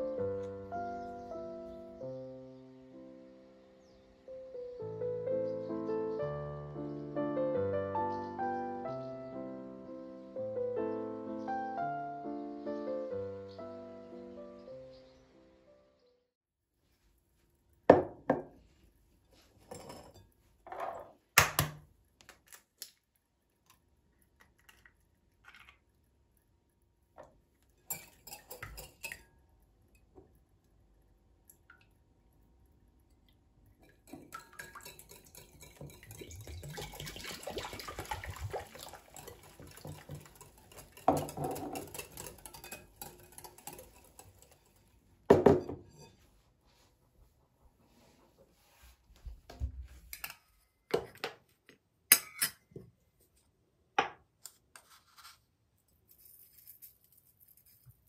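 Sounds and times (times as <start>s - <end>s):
dishes and utensils clinking: 19.6s - 21.1s, 27.8s - 29.3s, 33.8s - 46.3s, 52.1s - 52.7s.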